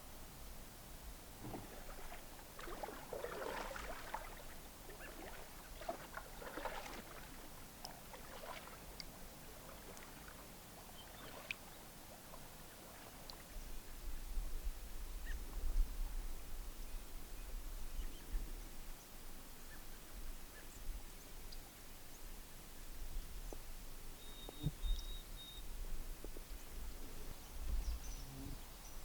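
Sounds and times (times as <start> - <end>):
paddle strokes swishing water: 1.4 - 14.0.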